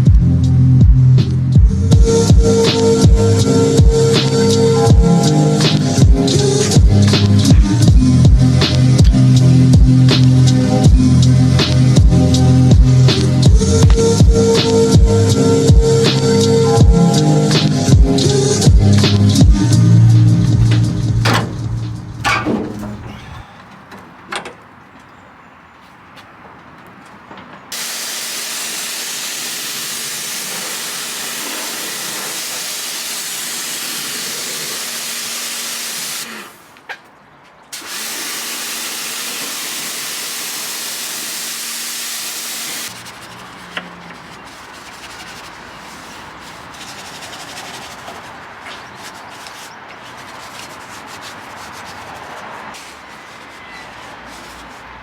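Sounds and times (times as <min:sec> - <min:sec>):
machine spray hissing: 0:02.0 - 0:12.4, 0:13.0 - 0:23.4, 0:27.7 - 0:36.7, 0:37.8 - 0:43.5
motor hum: 0:18.7 - 0:23.4
rubbing with small ticks: 0:42.8 - 0:55.0.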